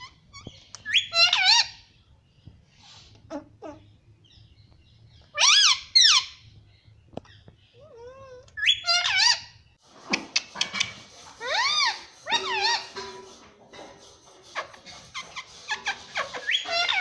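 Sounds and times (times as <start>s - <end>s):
parrot squawking: 0.0s - 1.8s, 5.4s - 6.4s, 8.6s - 9.5s, 10.6s - 13.0s, 14.5s - 17.0s.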